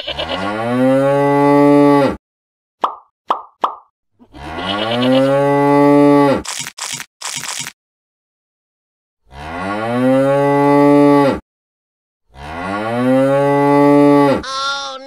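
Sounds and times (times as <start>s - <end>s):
cow mooing: 4.2s - 6.4s, 9.3s - 11.3s, 12.4s - 14.5s.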